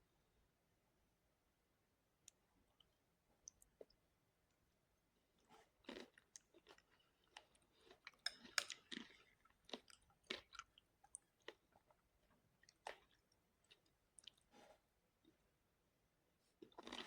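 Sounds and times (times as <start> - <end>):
person chewing crunchy food: 5.4 - 14.8, 16.6 - 17.0.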